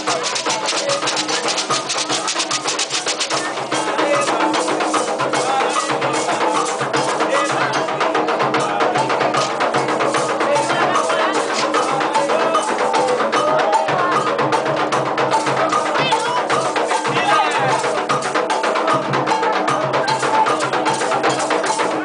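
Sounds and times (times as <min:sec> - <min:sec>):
clicking struck percussion: 0:00.0 - 0:03.9
hand drums: 0:00.0 - 0:22.0
voices chanting: 0:00.0 - 0:22.0.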